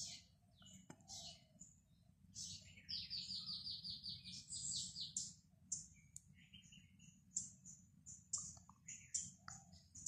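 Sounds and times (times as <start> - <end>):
small songbird chirping: 0.0 - 10.0.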